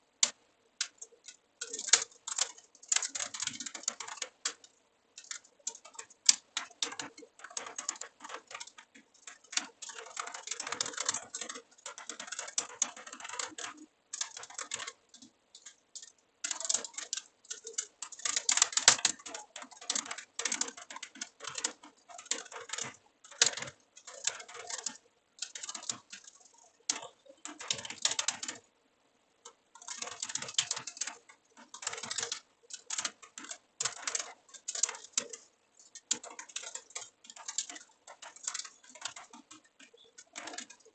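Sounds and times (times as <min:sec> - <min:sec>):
typing on computer keyboard: 0:00.2 - 0:28.7, 0:29.4 - 0:40.9.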